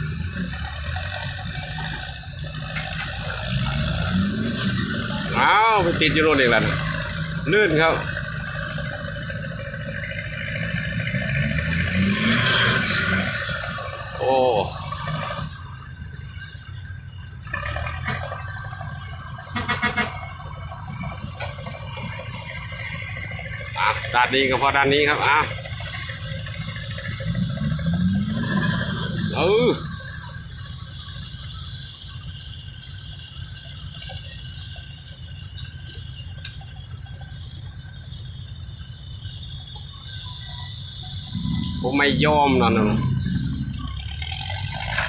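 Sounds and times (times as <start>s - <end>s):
diesel truck engine running: 0.0s - 45.0s
faint steady whine: 13.0s - 45.0s.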